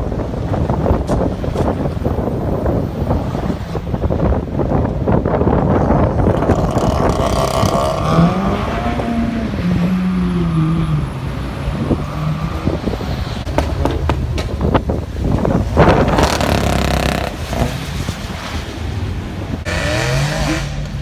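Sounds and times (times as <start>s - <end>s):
wind noise: 0.0s - 21.0s
sports car engine accelerating: 6.4s - 18.5s, 19.6s - 21.0s
sharp exhaust cracks: 13.4s - 17.9s.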